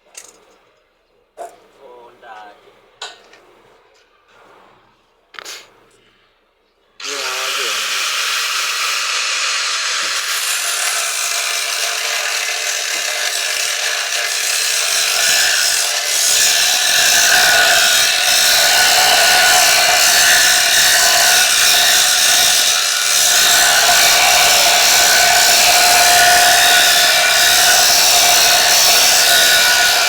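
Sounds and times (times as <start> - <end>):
power tool cutting: 7.0 - 30.0.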